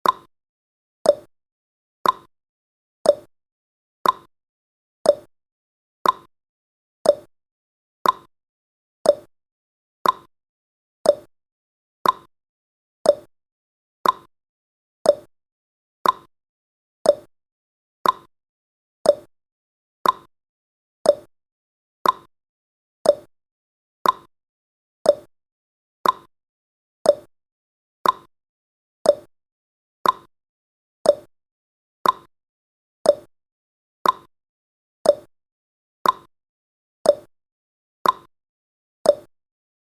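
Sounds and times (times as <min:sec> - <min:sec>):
clock ticking: 0:02.0 - 0:02.3, 0:04.0 - 0:04.3, 0:06.0 - 0:06.3, 0:08.0 - 0:08.3, 0:10.0 - 0:10.3, 0:12.0 - 0:12.3, 0:14.0 - 0:14.3, 0:16.0 - 0:16.3, 0:18.0 - 0:18.3, 0:20.0 - 0:20.3, 0:22.0 - 0:22.3, 0:23.1 - 0:23.3, 0:24.0 - 0:24.3, 0:26.0 - 0:26.3, 0:28.0 - 0:28.3, 0:29.1 - 0:29.3, 0:30.0 - 0:30.3, 0:31.1 - 0:31.3, 0:32.0 - 0:32.3, 0:33.1 - 0:33.3, 0:34.0 - 0:34.3, 0:35.1 - 0:35.3, 0:36.0 - 0:36.3, 0:38.0 - 0:38.3, 0:39.1 - 0:39.3.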